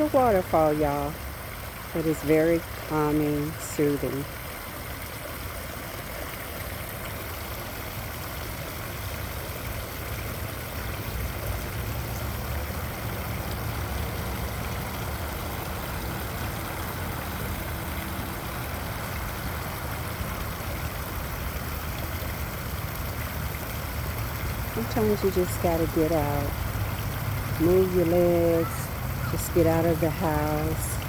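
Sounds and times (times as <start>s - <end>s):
small waterfall rushing: 0.0s - 31.0s.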